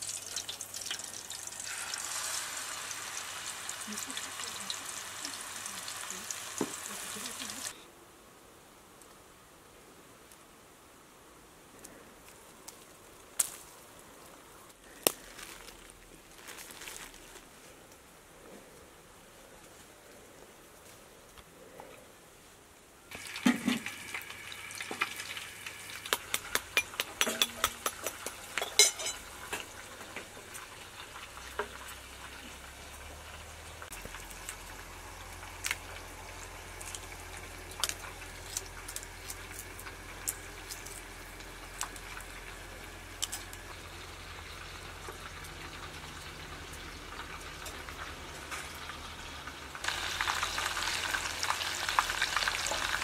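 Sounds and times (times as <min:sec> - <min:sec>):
patties frying in hot oil: 0:00.0 - 0:07.8, 0:23.1 - 0:53.0
low steady hiss: 0:00.0 - 0:53.0
sharp clicks and crackles: 0:25.9 - 0:28.8, 0:35.3 - 0:48.9.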